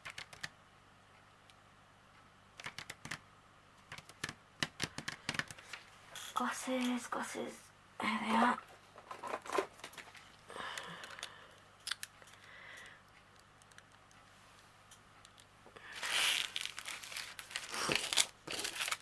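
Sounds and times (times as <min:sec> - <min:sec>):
sharp clicks: 0:00.0 - 0:00.6, 0:02.6 - 0:03.2, 0:10.7 - 0:14.2
plastic bags crinkling: 0:15.8 - 0:19.0.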